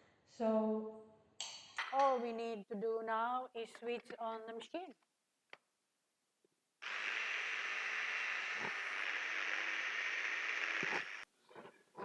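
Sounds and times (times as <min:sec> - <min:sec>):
food processor running: 0:06.8 - 0:11.2.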